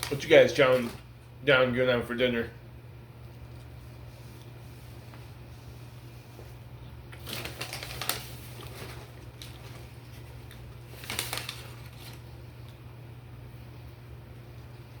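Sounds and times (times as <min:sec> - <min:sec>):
crackly crunching of food: 0:00.0 - 0:01.1, 0:07.1 - 0:12.9
steady low hum: 0:00.0 - 0:15.0.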